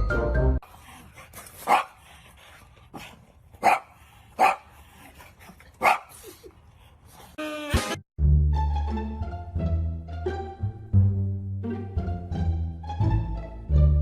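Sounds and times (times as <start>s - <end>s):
dog barking: 1.6s - 2.0s, 3.6s - 4.7s, 5.8s - 6.1s.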